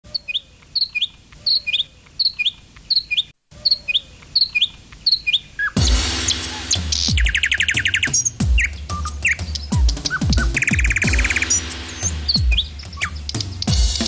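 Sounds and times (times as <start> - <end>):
small bird chirping: 0.0 - 13.9
loud music: 5.8 - 14.0.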